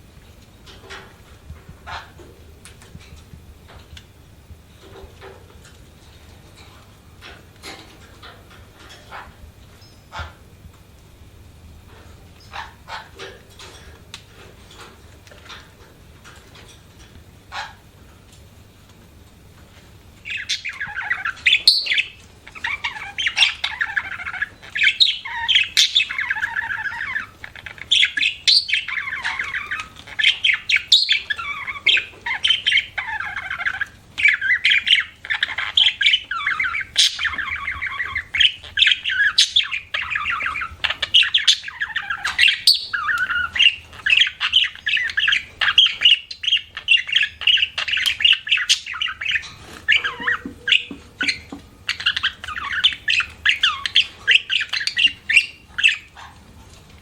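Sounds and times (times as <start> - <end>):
budgerigar warbling and chirping: 1.8 - 2.2, 12.4 - 13.3, 20.2 - 56.4.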